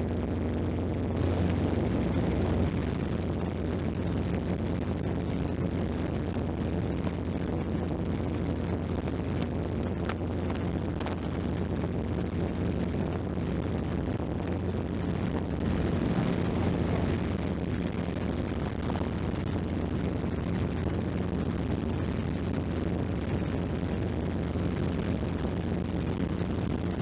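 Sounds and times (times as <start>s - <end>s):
helicopter in flight: 14.9s - 24.1s.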